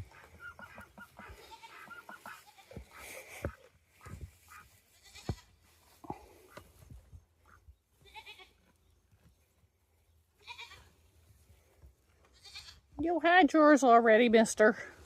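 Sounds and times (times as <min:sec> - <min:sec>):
goats bleating: 0:01.1 - 0:03.0, 0:04.8 - 0:05.5, 0:08.0 - 0:08.6, 0:10.4 - 0:10.9.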